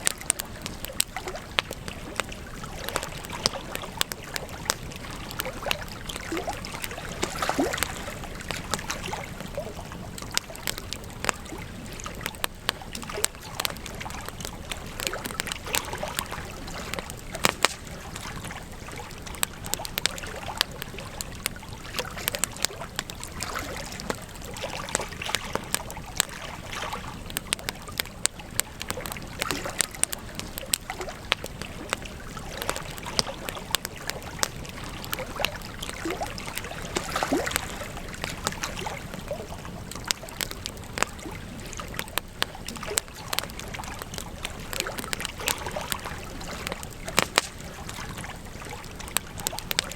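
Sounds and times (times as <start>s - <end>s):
campfire crackling and popping: 0.0s - 49.9s
hiss of flames: 0.0s - 49.9s.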